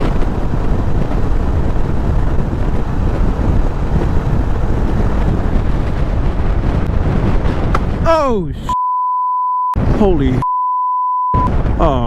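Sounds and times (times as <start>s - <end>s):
wind buffeting a camera: 0.0s - 8.7s, 11.4s - 12.0s.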